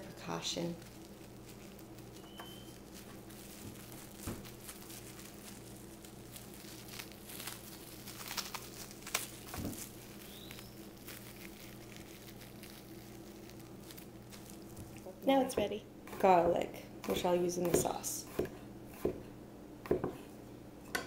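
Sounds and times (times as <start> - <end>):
plastic wrap crinkling: 0.0 - 15.5
low steady hum: 0.0 - 21.0.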